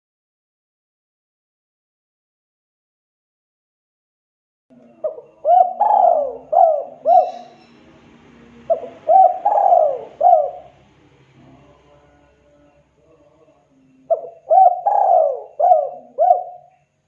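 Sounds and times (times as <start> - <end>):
dove cooing: 4.7 - 11.6, 14.0 - 16.8.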